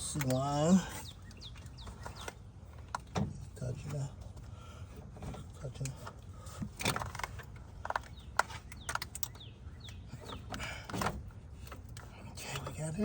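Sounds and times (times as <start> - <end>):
metal clicks and knocks: 5.2 - 12.8.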